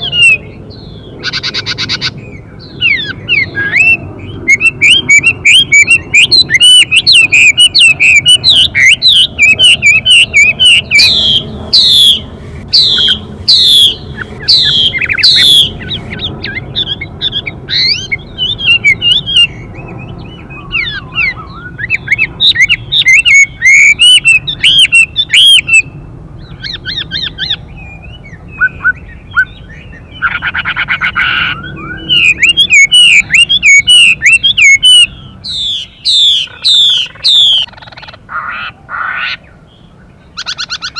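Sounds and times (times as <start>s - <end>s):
bird singing whistled notes: 0.0s - 38.1s
harsh bird buzz call: 2.9s - 19.3s.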